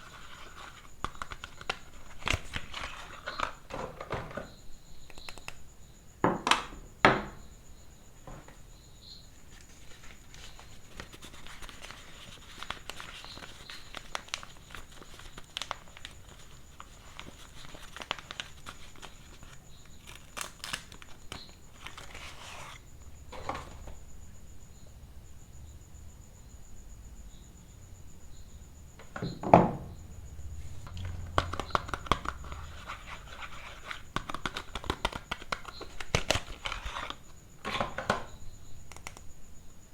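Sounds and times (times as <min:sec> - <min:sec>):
soap wrappers crinkling and tearing: 0:00.0 - 0:03.7, 0:09.5 - 0:22.8, 0:30.9 - 0:37.8, 0:38.9 - 0:39.3.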